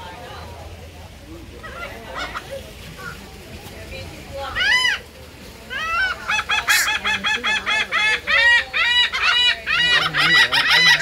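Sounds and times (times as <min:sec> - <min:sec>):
bird calling loudly: 0:05.7 - 0:11.0.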